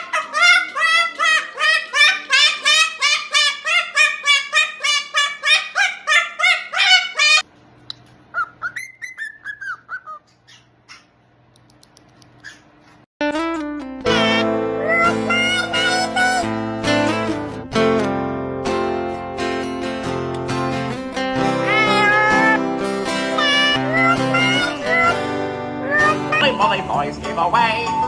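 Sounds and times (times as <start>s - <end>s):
parrot calling: 0.0s - 7.5s, 8.3s - 11.2s, 14.2s - 16.5s, 21.6s - 26.6s.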